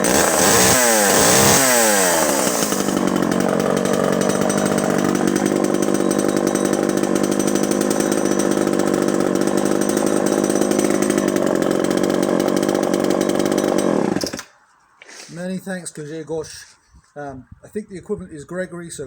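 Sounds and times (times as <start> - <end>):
chainsaw running: 0.0 - 14.6.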